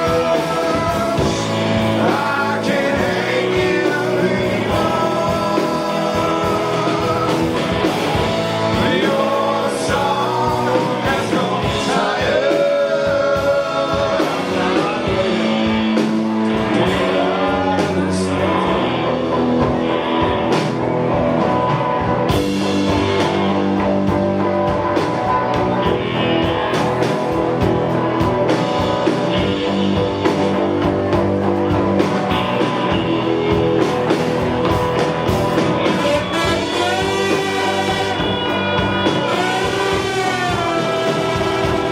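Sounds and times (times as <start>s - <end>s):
bass guitar: 0.0s - 41.9s
drums: 0.0s - 41.9s
electric guitars: 0.0s - 41.9s
trombone: 35.7s - 41.9s
tenor saxophone: 35.8s - 41.9s.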